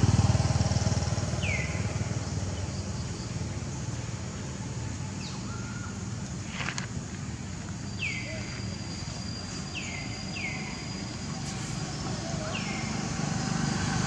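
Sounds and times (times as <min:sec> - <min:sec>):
brief rustle: 0:06.4 - 0:07.2.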